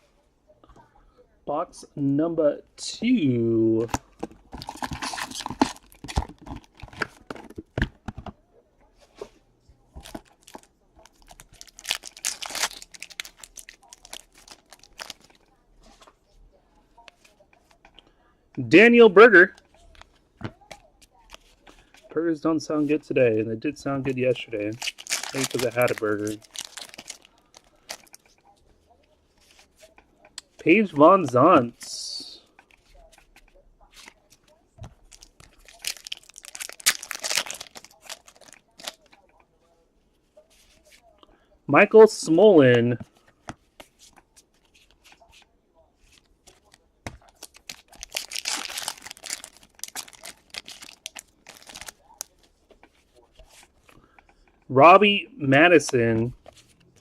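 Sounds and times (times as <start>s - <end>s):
plastic packaging crackling: 4.2s - 7.6s, 10.0s - 15.5s, 24.1s - 28.5s, 34.0s - 39.4s, 46.1s - 52.6s.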